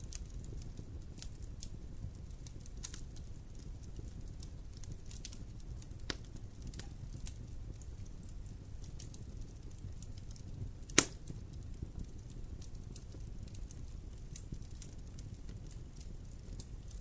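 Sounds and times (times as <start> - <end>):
fire crackling: 0.0 - 17.0
fire rumbling: 0.0 - 17.0
loud sharp pop: 11.0 - 11.2.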